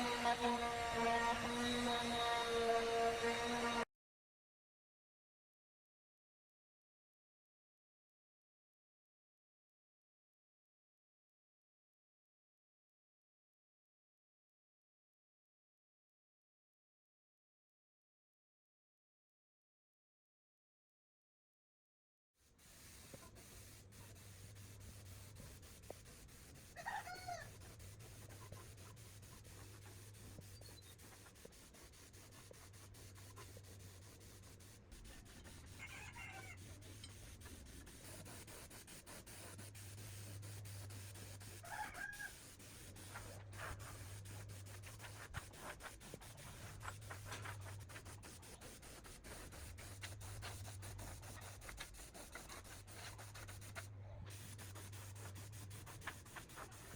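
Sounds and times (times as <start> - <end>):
faint steady sanding: 0.0 - 3.8, 22.4 - 56.9.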